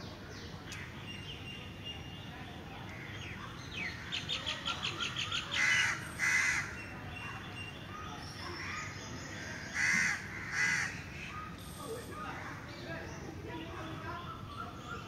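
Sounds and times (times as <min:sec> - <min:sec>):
harsh caw-like bird calls: 0:05.1 - 0:06.9, 0:09.6 - 0:11.6.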